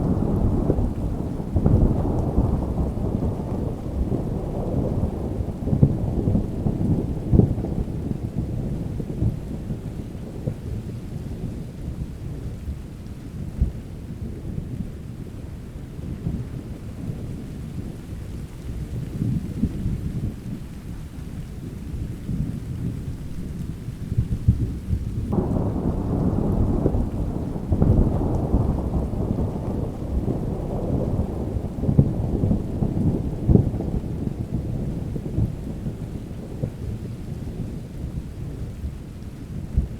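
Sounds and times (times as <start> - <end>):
rolling thunder: 0.0 - 12.8, 21.9 - 39.9
steady rain: 0.0 - 39.9.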